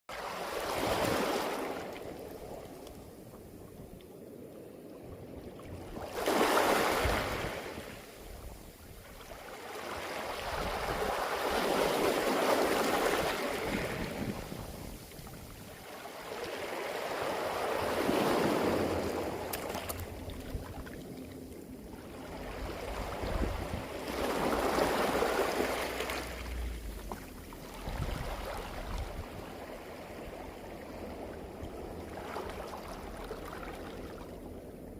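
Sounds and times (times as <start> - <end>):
waves washing over pebbles: 6.0 - 8.1, 9.4 - 34.1.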